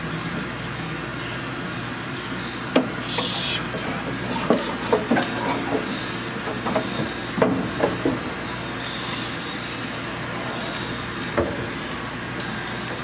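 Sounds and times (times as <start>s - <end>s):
steady background hum: 0.0s - 13.0s
knocks and clicks on dryer drum: 4.4s - 8.3s.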